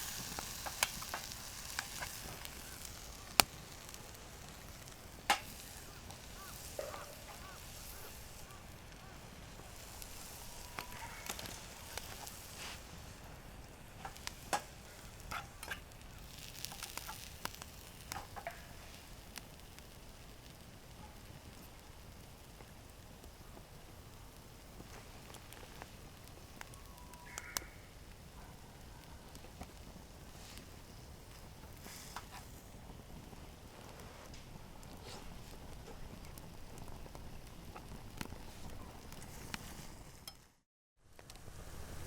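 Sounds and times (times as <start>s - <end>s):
campfire crackling and popping: 0.0s - 40.5s
faint short calls: 5.5s - 12.5s.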